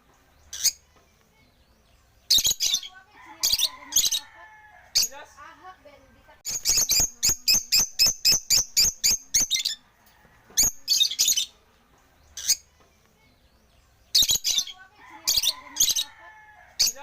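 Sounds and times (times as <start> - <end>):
lovebirds chirping shrilly: 0.4 - 0.9, 1.6 - 5.2, 6.5 - 9.8, 10.6 - 11.6, 12.2 - 12.7, 13.6 - 17.0.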